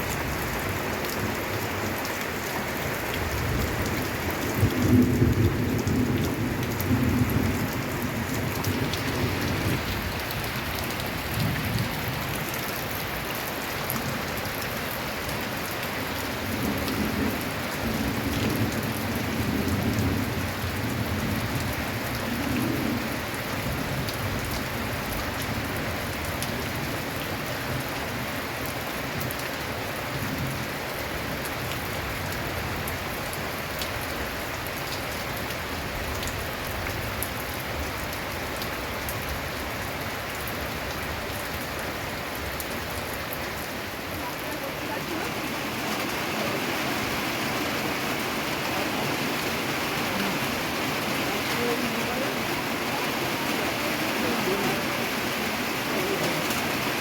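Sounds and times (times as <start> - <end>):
rain on a tin roof: 0.0 - 57.0
thunder rumbling: 3.3 - 10.6.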